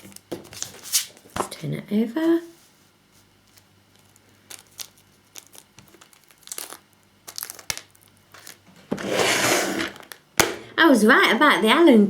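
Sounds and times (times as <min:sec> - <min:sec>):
packaging crinkling: 0:03.5 - 0:08.8.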